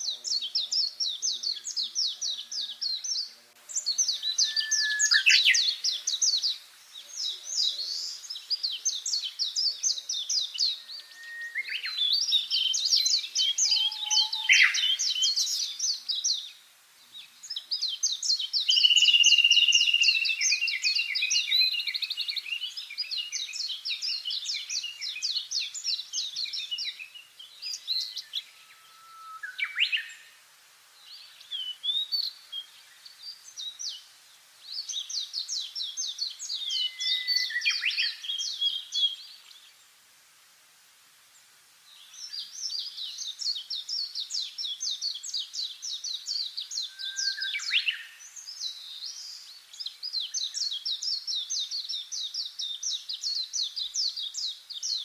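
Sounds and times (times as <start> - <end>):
low downward-slurred bird calls: 0.0 - 6.5, 7.3 - 15.8, 27.8 - 30.4, 46.3 - 48.2
songbird trilling: 0.0 - 6.6, 7.4 - 16.4, 17.9 - 27.0, 35.0 - 39.0, 43.4 - 48.2.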